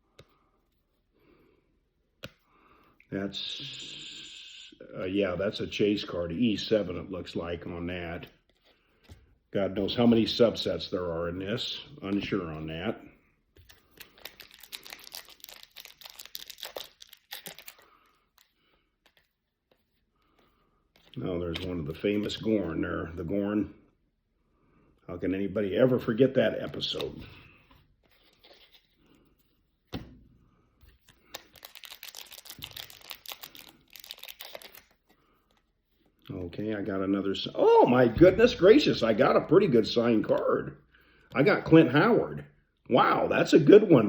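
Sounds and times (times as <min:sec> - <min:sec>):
card wrapper crinkling: 0:13.6 - 0:19.9, 0:30.9 - 0:35.7.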